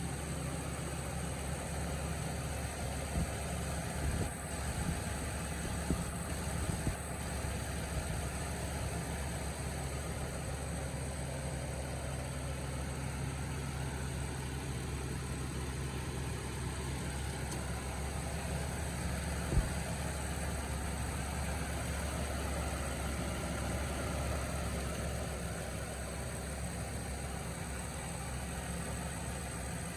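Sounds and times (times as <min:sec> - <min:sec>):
truck engine idling: 0:00.0 - 0:29.9.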